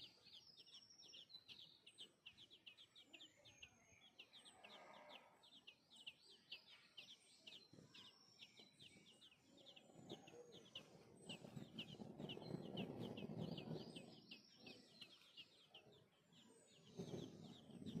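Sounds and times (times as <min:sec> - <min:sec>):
baby birds peeping: 0:00.0 - 0:18.0.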